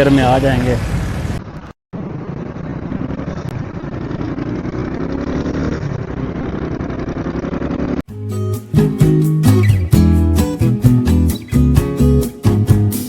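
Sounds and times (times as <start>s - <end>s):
road noise: 0.0s - 11.8s
small motorcycle engine running: 2.0s - 8.0s
guitar music: 8.1s - 13.0s.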